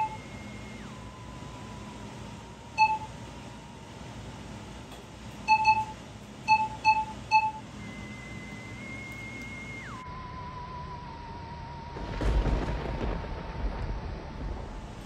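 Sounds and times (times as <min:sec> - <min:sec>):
thin electronic tone: 0:00.0 - 0:01.9
short electronic beeps: 0:02.8 - 0:03.1, 0:05.5 - 0:10.0.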